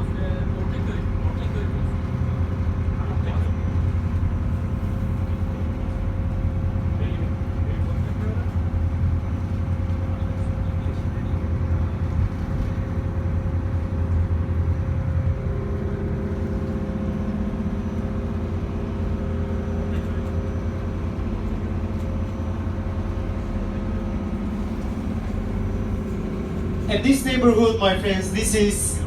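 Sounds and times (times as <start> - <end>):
boat engine drone: 0.0 - 29.0
steady hums: 23.1 - 29.0.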